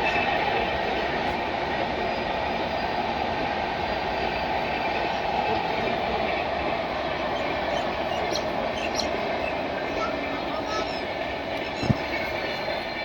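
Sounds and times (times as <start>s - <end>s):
train running on track: 0.0s - 13.0s.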